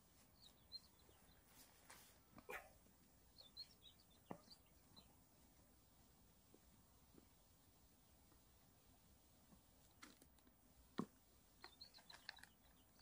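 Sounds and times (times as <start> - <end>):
faint bird chirps: 0.0 - 5.2, 11.6 - 13.0.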